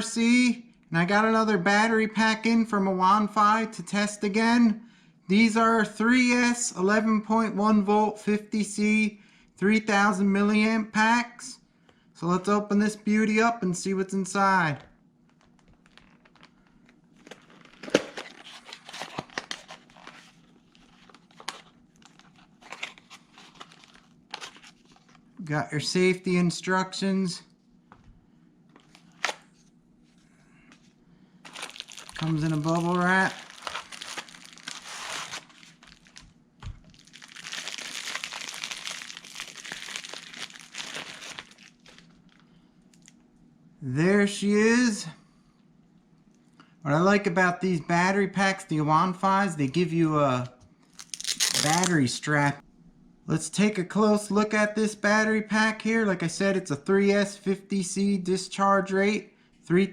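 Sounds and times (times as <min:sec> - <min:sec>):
packaging crinkling and tearing: 0:15.3 - 0:25.2, 0:28.8 - 0:29.6, 0:31.4 - 0:43.1, 0:50.9 - 0:52.1.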